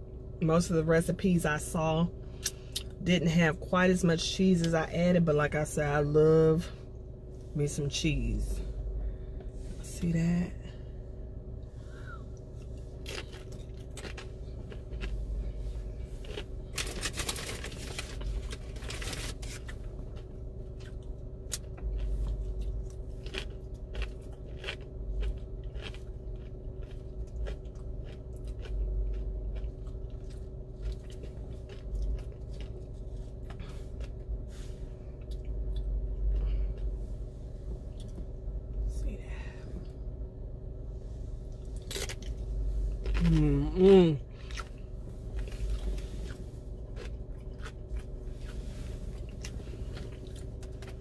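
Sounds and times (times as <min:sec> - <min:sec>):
steady low hum: 0:00.0 - 0:51.0
chewing and crunching chips: 0:11.9 - 0:37.2, 0:41.4 - 0:51.0.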